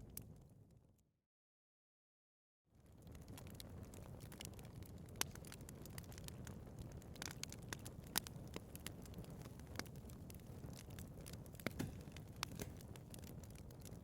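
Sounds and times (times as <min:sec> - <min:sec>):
low rumble of flames: 0:00.0 - 0:01.0, 0:02.7 - 0:14.0
wood fire crackling: 0:02.8 - 0:14.0.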